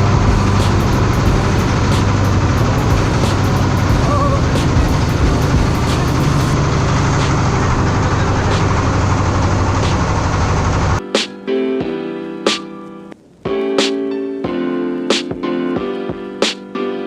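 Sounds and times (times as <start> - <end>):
heavy engine droning: 0.0 - 11.0
piano music: 0.0 - 17.0.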